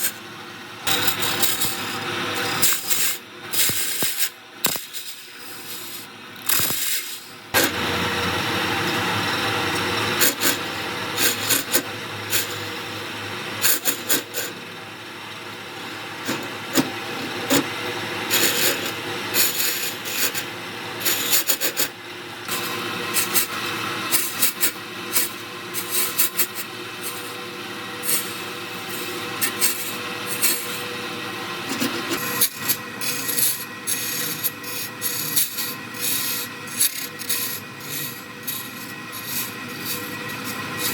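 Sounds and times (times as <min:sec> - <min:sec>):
lathe humming: 0:07.4 - 0:13.6
tool rasping on spinning wood: 0:31.8 - 0:40.9.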